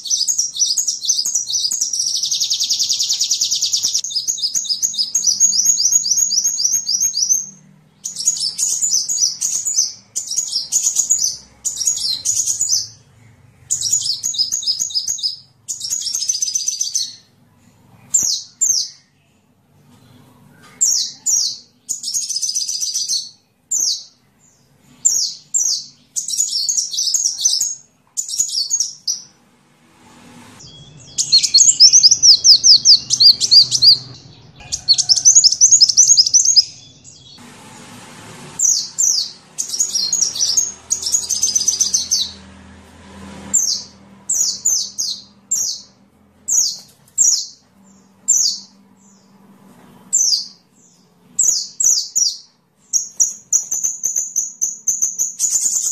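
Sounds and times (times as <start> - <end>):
bird chirping and trilling: 0.0 - 17.4, 20.0 - 29.4, 30.6 - 37.4, 38.6 - 42.5, 43.5 - 49.4, 50.0 - 55.9.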